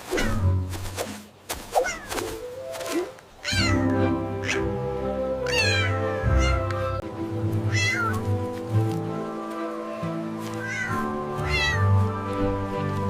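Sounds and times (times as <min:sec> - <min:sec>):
background music: 0:02.2 - 0:13.0
cat meowing: 0:03.4 - 0:04.7, 0:05.4 - 0:06.7, 0:07.7 - 0:08.2, 0:10.5 - 0:11.9.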